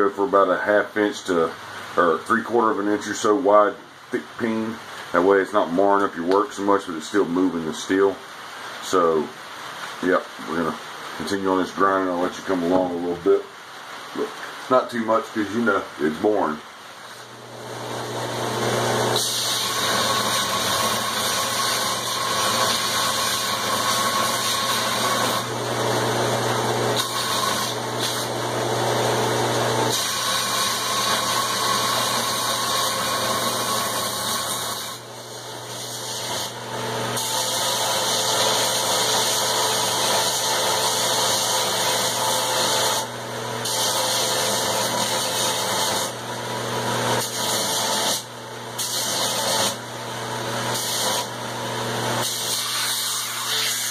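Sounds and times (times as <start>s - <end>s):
harsh grinding hiss: 0.0s - 46.2s
grinder motor hum: 17.3s - 52.6s.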